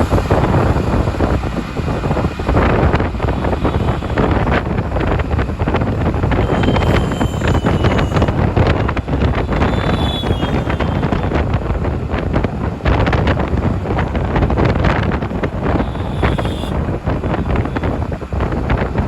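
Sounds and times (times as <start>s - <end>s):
road traffic: 0.0s - 19.0s
wind buffeting microphone: 0.0s - 19.0s
faint high tones: 6.3s - 11.4s.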